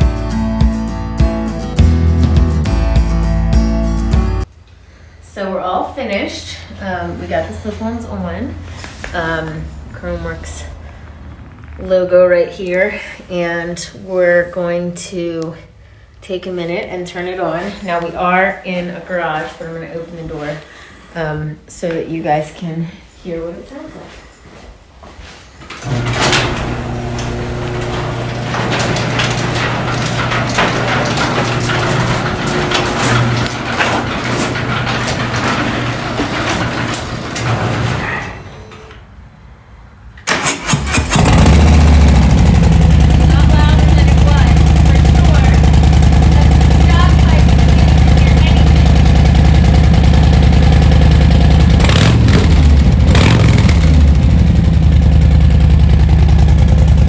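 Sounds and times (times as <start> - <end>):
door panels and rollers rattling: 25.6 - 39.2, 40.2 - 57.0
garage door motor hum: 25.7 - 39.5, 40.1 - 57.0.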